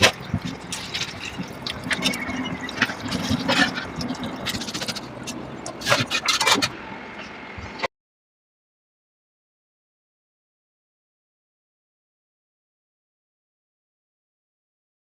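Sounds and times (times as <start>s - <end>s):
kitchen utensils clinking and scraping: 0.0s - 6.8s.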